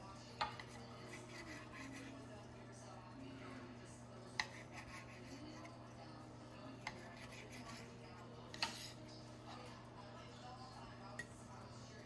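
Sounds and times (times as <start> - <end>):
knife slicing fish: 0.4 - 2.2, 4.3 - 5.7, 6.8 - 7.9.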